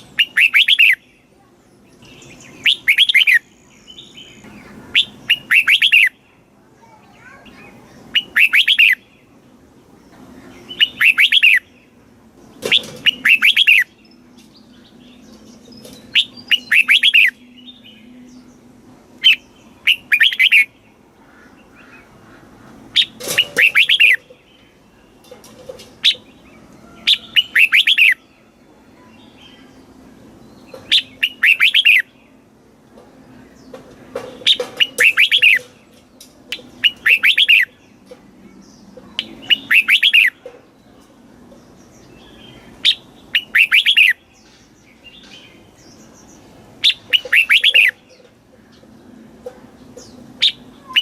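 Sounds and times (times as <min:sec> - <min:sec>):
bird singing short phrases: 0:00.0 - 0:09.3, 0:10.4 - 0:11.8, 0:12.7 - 0:18.6, 0:19.2 - 0:20.8, 0:30.5 - 0:32.1, 0:34.4 - 0:35.7, 0:36.5 - 0:37.9, 0:38.6 - 0:40.4, 0:42.6 - 0:48.3, 0:50.0 - 0:51.0.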